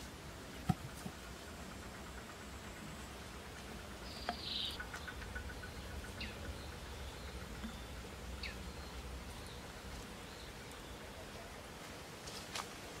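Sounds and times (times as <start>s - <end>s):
steady low background noise: 0.0s - 13.0s
small birds calling: 1.2s - 11.6s.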